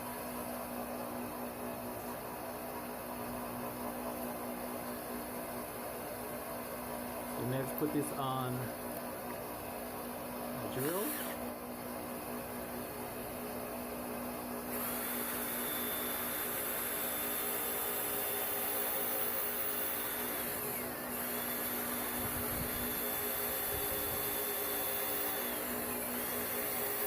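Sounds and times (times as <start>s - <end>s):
electric drill motor whine: 10.5s - 27.0s.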